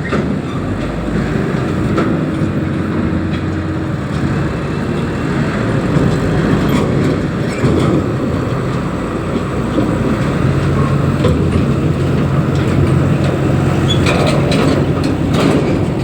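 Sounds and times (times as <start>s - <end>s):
diesel machinery rumbling: 0.0s - 16.0s.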